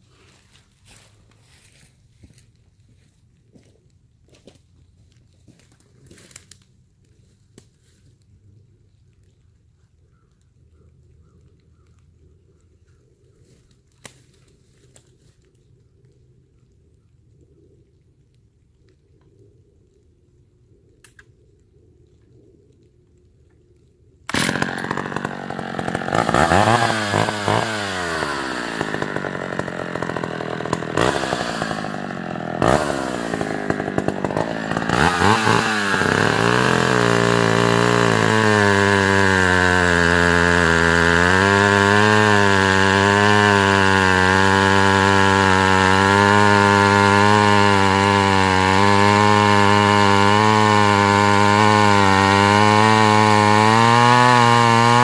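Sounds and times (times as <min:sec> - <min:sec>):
chainsaw cutting wood: 0:24.3 - 0:55.0
chainsaw revving: 0:24.3 - 0:55.0.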